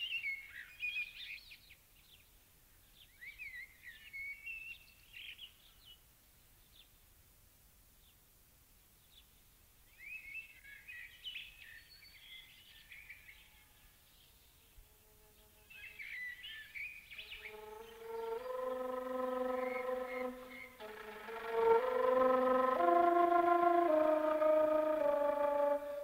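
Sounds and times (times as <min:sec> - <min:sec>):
songbird twittering: 0:15.8 - 0:22.6
organ-like chord: 0:17.2 - 0:26.0.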